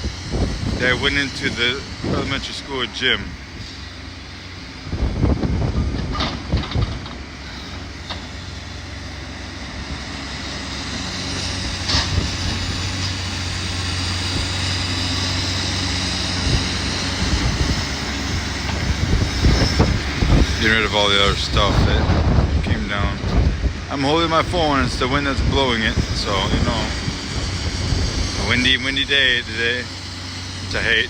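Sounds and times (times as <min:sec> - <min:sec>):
heavy machinery engine running: 0:00.0 - 0:31.0.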